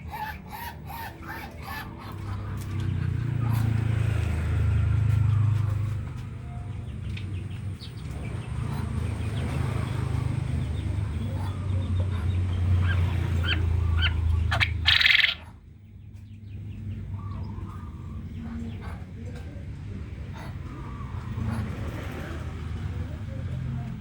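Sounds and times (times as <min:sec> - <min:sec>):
quail chattering calls: 0:00.0 - 0:03.8, 0:10.9 - 0:15.6.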